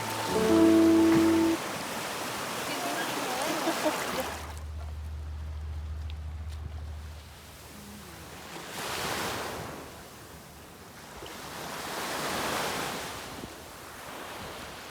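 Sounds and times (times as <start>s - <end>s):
sea waves washing in: 0.0s - 4.2s.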